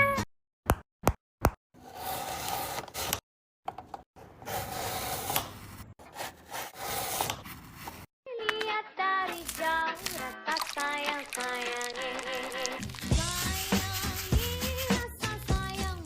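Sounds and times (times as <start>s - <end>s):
rubbing scraping noise: 12.8s - 15.2s.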